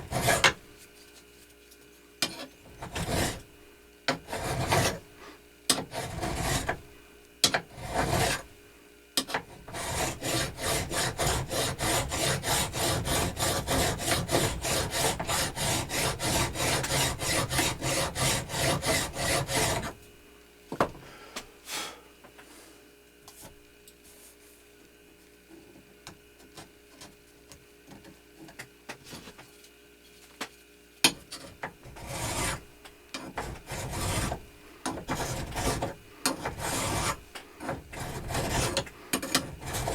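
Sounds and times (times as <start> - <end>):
hand file rasping over metal: 0.0 - 0.6, 2.2 - 3.4, 4.1 - 5.0, 5.7 - 6.8, 7.5 - 8.5, 9.3 - 20.0, 31.8 - 32.6, 33.2 - 39.9.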